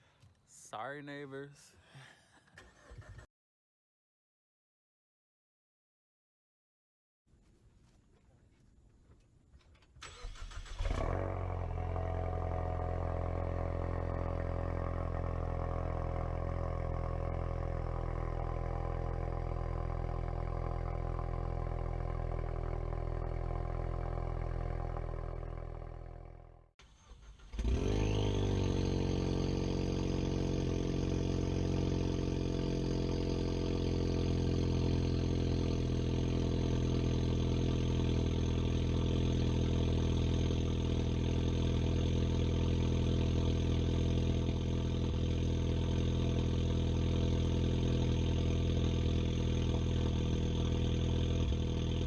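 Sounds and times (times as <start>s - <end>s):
car engine cranking: 10.0s - 11.6s, 26.8s - 30.7s
car engine idling loudly: 10.8s - 26.3s, 27.3s - 52.0s.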